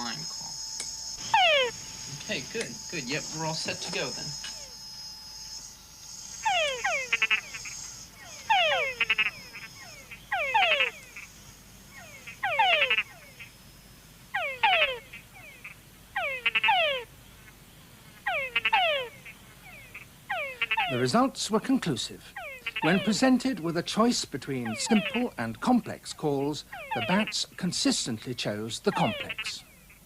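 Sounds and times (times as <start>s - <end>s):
frog calls over loudspeakers: 1.2s - 4.8s, 6.4s - 11.3s, 11.9s - 13.6s, 14.3s - 17.1s, 18.2s - 21.2s, 22.3s - 23.5s, 24.6s - 25.4s, 26.4s - 27.6s, 28.9s - 30.0s.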